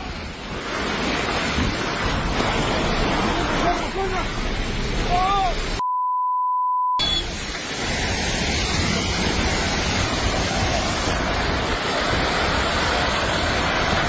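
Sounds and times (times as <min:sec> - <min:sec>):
landslide rushing noise: 0:00.0 - 0:05.8, 0:07.0 - 0:14.0.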